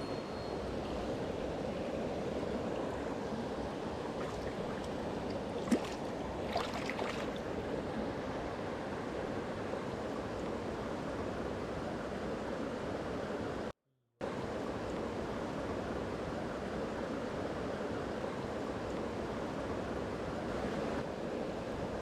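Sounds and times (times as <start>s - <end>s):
stream water rushing: 0.0s - 9.6s.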